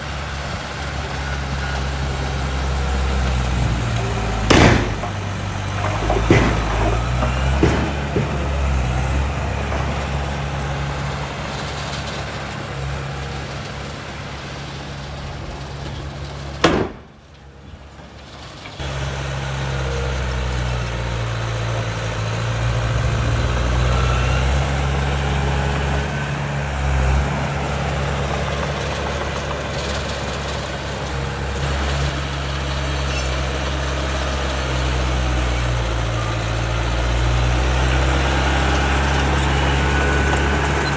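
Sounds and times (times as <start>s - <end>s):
heavy diesel engine droning: 0.0s - 40.9s.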